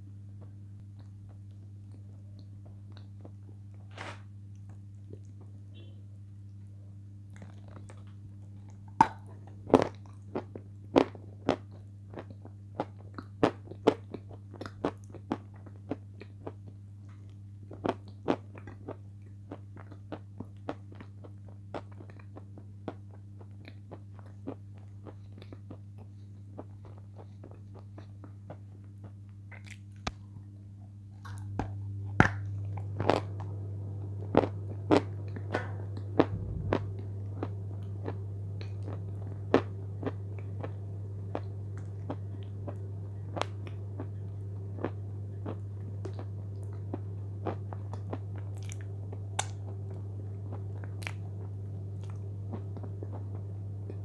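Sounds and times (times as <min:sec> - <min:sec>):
steady low hum: 0:21.3 - 0:54.0
crunchy chewing: 0:47.4 - 0:51.2.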